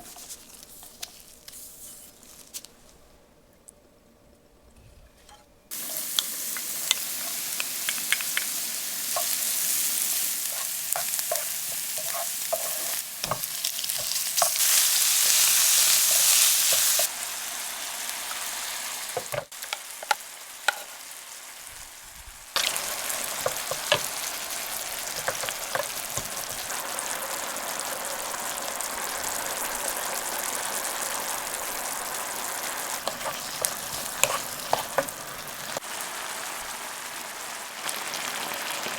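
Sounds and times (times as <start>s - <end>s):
food sizzling in oil: 5.7s - 38.9s
utensil scraping pan: 9.1s - 17.1s, 22.6s - 26.8s, 32.9s - 35.5s.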